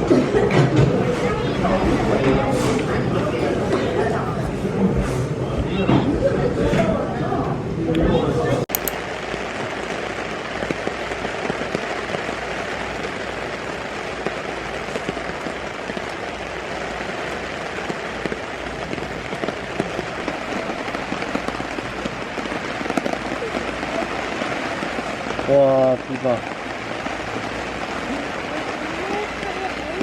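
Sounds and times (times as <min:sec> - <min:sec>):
raindrop impacts: 0:08.7 - 0:30.0
steady rain hiss: 0:08.7 - 0:30.0.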